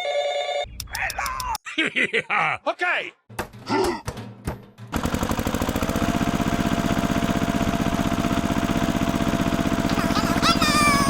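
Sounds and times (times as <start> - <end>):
small engine running: 4.9 - 11.0.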